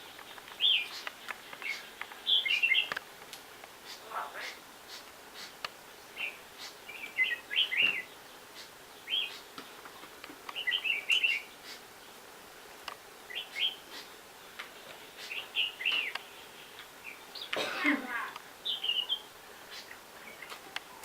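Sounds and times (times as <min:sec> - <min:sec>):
faint clicks: 0:00.0 - 0:02.2, 0:02.8 - 0:03.8, 0:05.5 - 0:05.8, 0:12.8 - 0:13.0, 0:15.9 - 0:17.6, 0:19.8 - 0:21.0
small birds chirping: 0:00.0 - 0:21.0.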